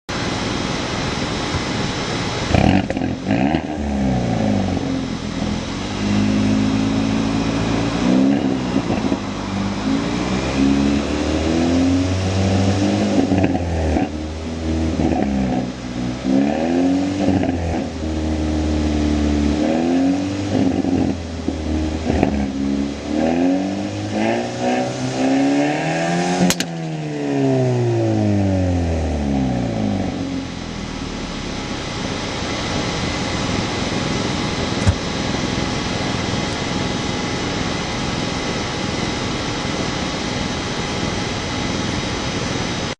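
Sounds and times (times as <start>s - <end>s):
exhaust cracks: 1.5s - 10.2s, 31.4s - 39.9s
car engine revving: 1.8s - 42.9s.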